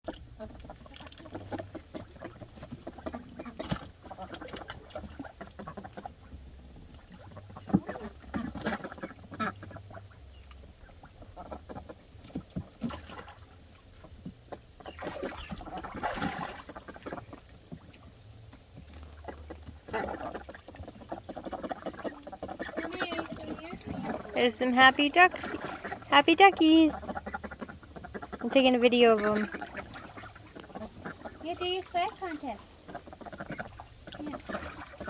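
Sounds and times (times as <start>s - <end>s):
ducks quacking: 0.1s - 6.4s, 7.1s - 10.5s, 19.0s - 35.0s
ducks splashing in water: 0.1s - 35.0s.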